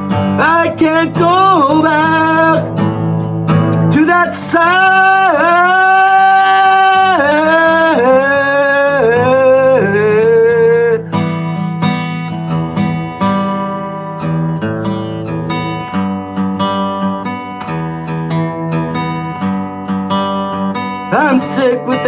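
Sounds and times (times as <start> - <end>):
acoustic guitar picking: 0.0 - 22.0
person singing: 0.2 - 11.3, 21.1 - 22.0.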